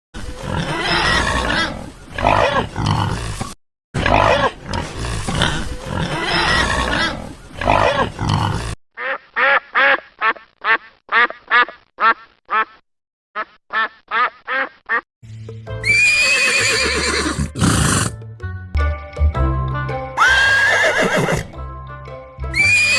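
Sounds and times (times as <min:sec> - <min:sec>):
animals grunting: 0:00.2 - 0:09.6, 0:15.9 - 0:18.2
duck quacking: 0:09.0 - 0:12.8, 0:13.4 - 0:15.0.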